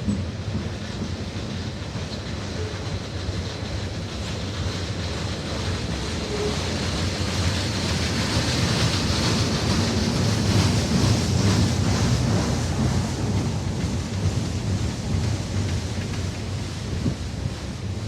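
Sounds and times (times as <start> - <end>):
train running past: 0.0 - 18.0
wind buffeting microphone: 7.0 - 18.0.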